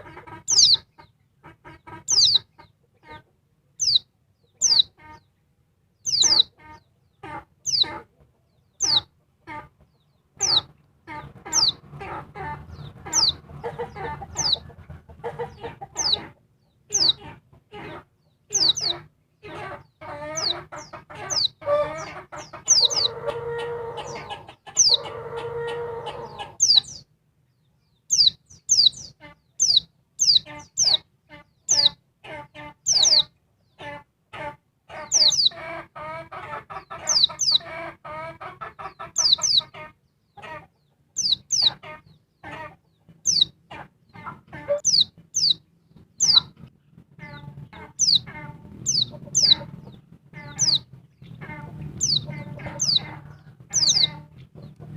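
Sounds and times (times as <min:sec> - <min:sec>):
drawn-out bird calls: 0:00.0 - 0:05.2, 0:06.0 - 0:27.1, 0:28.0 - 0:54.9
bird chirping: 0:00.0 - 0:34.0, 0:34.9 - 0:35.6, 0:36.7 - 0:54.9
rapid clucking chatter: 0:46.0 - 0:54.9.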